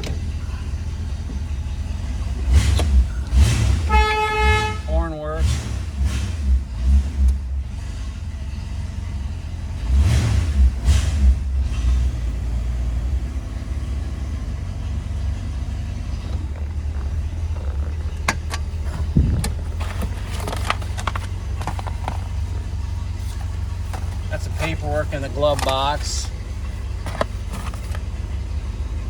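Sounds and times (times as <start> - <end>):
car engine idling: 0.0 - 29.0
sharp clicks and knocks: 15.4 - 24.8, 25.4 - 26.0, 27.0 - 28.1.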